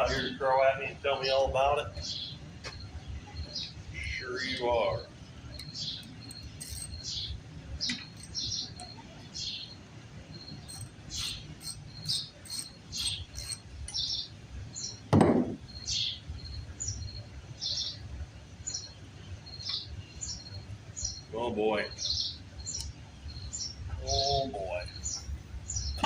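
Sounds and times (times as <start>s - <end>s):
bird chirping: 0.0s - 26.0s
loud thud: 15.1s - 15.6s.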